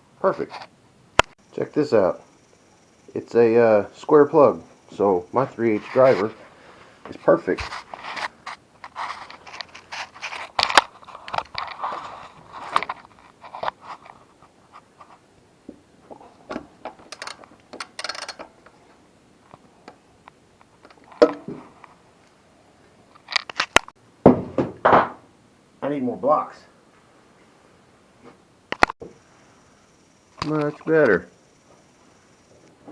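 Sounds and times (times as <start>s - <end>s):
tools clicking and scraping: 7.2s - 15.2s, 16.2s - 18.8s, 23.1s - 24.0s
metallic rattle: 16.5s - 18.7s
thump: 24.2s - 25.2s.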